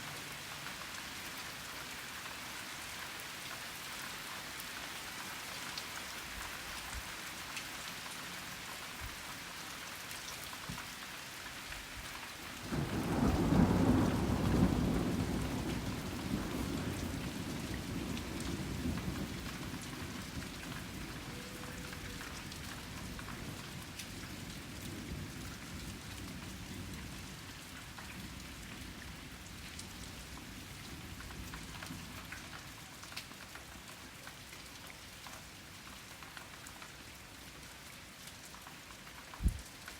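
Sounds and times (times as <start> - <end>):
steady rain falling: 0.0 - 39.9
thunder clap and rumble: 12.7 - 21.2.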